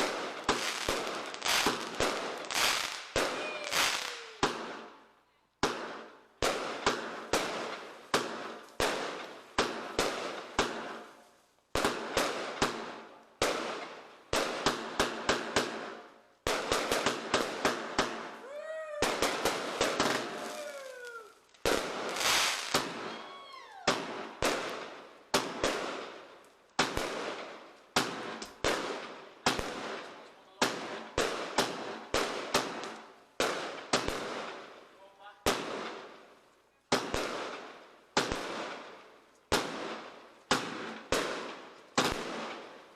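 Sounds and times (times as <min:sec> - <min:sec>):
fireworks whistling: 0:00.0 - 0:04.8, 0:16.8 - 0:24.3
fireworks bangs: 0:00.0 - 0:05.0, 0:05.6 - 0:34.6, 0:36.9 - 0:42.8.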